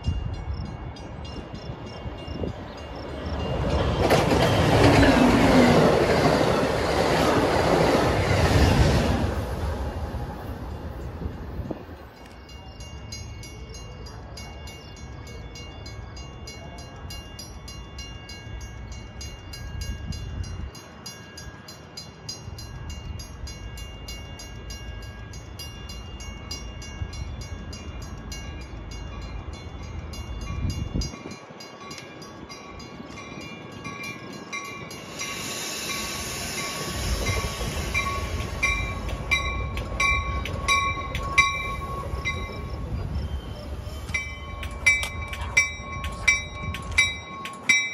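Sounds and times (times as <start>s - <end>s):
train rumbling: 0.0s - 47.9s
burst of hiss: 35.0s - 39.0s.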